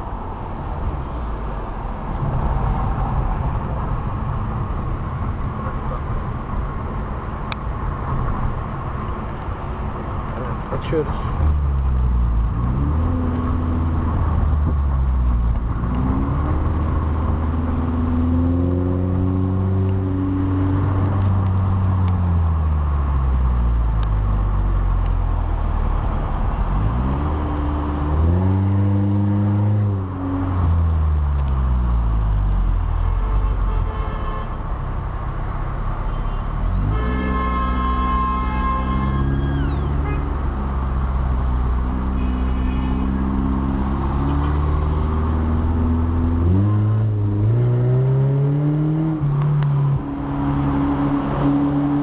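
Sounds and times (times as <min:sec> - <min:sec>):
car engine accelerating through exhaust: 0:11.3 - 0:32.8, 0:43.0 - 0:52.0.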